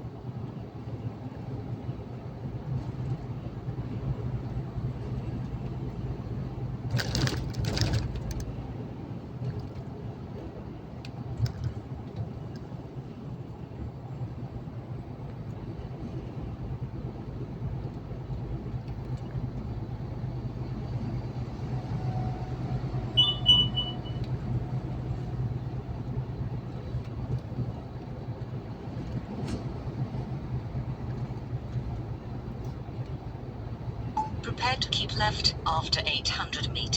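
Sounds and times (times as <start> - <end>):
truck engine and road drone: 0.0 - 36.9
brief high-pitched tone: 23.2 - 24.3.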